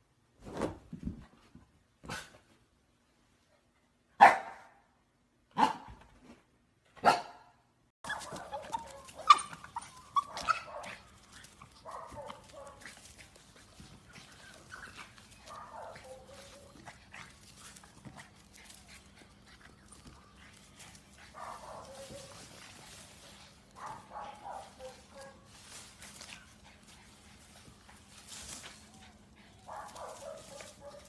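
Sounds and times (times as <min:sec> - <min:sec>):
dog calling: 0:08.0 - 0:11.1.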